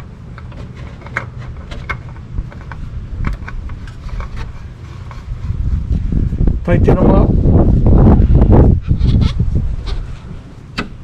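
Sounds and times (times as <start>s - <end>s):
metallic clicks and scrapes: 0.0s - 5.9s
steady low rumble: 0.0s - 11.0s.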